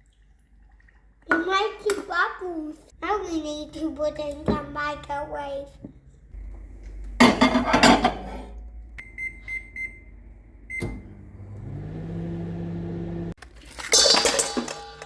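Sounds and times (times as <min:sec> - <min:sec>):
microwave oven humming: 0:08.6 - 0:13.4.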